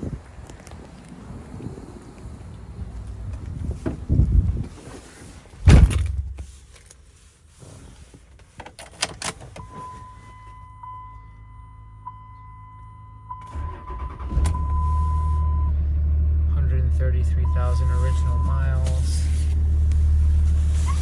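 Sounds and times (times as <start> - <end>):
heavy door thunk: 5.6 - 6.4
diesel engine cranking and running: 13.2 - 21.0
high electronic warning tone: 16.9 - 19.3.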